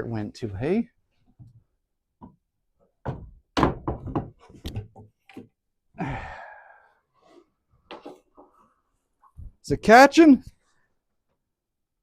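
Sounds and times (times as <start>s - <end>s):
wooden knocks and thunks: 1.4s - 5.6s.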